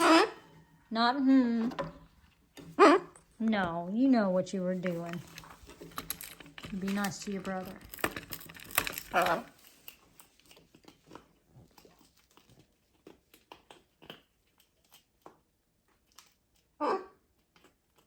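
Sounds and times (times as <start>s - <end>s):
parrot loud call: 0.0s - 0.7s, 16.8s - 17.2s.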